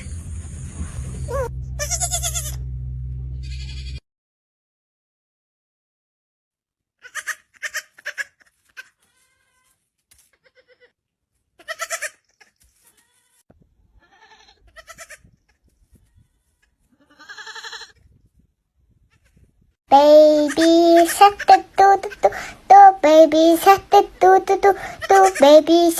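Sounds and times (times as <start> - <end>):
goat bleating: 1.4 - 2.6, 3.4 - 4.0, 7.0 - 10.9, 11.6 - 12.2, 14.0 - 15.2, 16.9 - 18.0, 20.4 - 22.4, 24.2 - 25.6.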